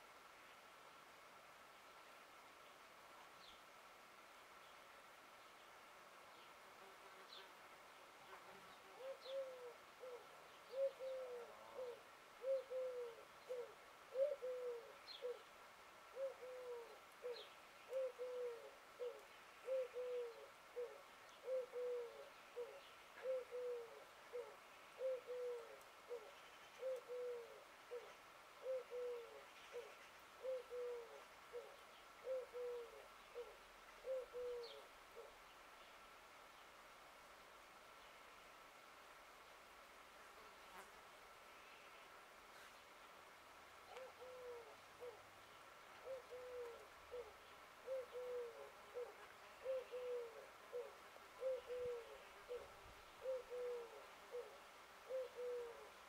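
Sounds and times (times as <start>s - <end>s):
bird low call: 9.0s - 15.4s, 16.2s - 35.4s, 43.9s - 45.2s, 46.0s - 56.0s.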